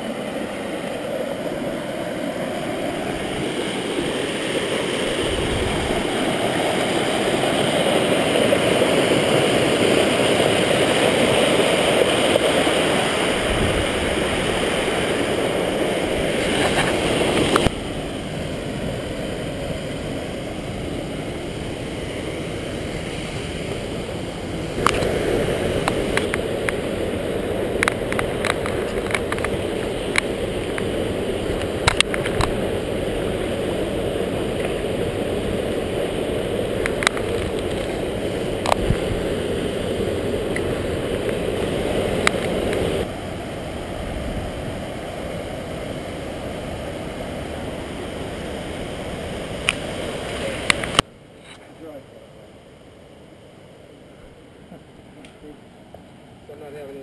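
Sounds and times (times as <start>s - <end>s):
river water rushing: 0.0s - 57.0s
sharp clicks and knocks: 27.8s - 30.9s, 31.6s - 32.6s.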